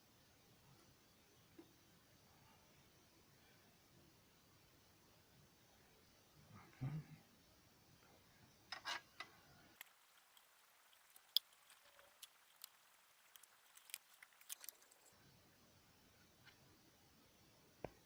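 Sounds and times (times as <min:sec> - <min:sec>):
small parts clicking and tapping: 0:08.7 - 0:15.2.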